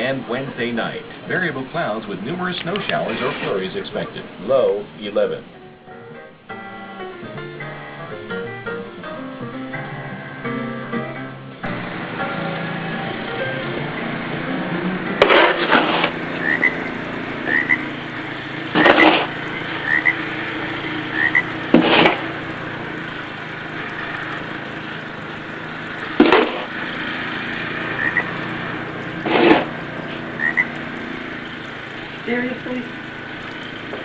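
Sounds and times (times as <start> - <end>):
snow shovel scraping snow: 15.2 - 16.2, 18.8 - 19.3, 21.8 - 22.3, 26.2 - 26.6, 29.3 - 29.7.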